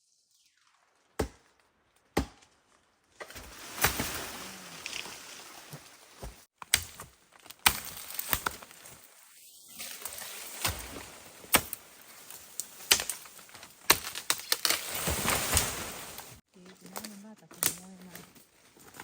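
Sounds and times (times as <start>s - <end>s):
blade chopping wood: 1.2s - 1.5s, 2.1s - 2.6s, 6.2s - 8.6s, 10.6s - 11.8s, 12.8s - 15.6s.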